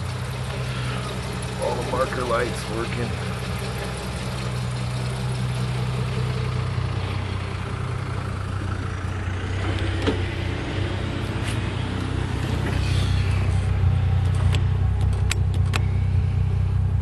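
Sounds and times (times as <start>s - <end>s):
car engine idling: 0.0s - 17.0s
click: 14.3s - 15.9s.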